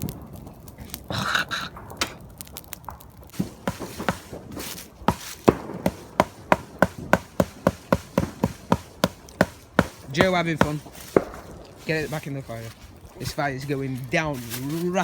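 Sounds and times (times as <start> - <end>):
stick knocking on wood: 3.4 - 11.3.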